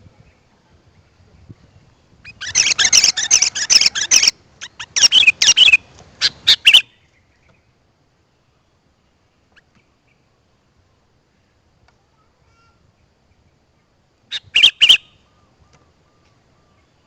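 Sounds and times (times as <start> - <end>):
bird chirping: 1.3 - 7.8, 13.3 - 17.0.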